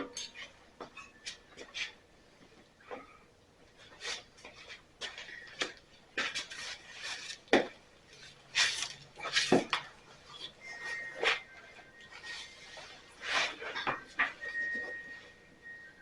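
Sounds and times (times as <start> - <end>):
metallic clinks and scrapes of tools: 0.0 - 2.0.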